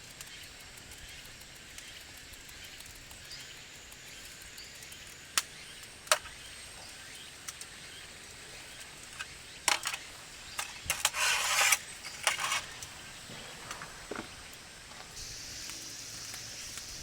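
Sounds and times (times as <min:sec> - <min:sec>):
scraping rustle: 0:08.4 - 0:15.2
small hard objects clinking: 0:08.7 - 0:15.3.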